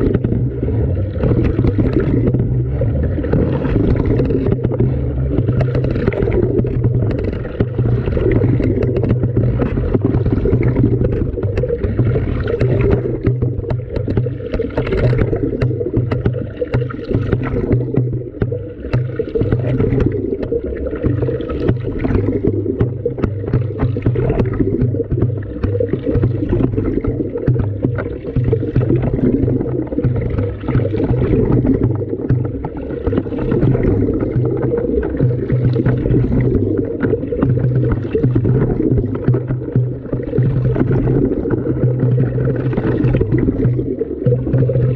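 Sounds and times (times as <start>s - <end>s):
muffled water sloshing: 0.0s - 44.9s.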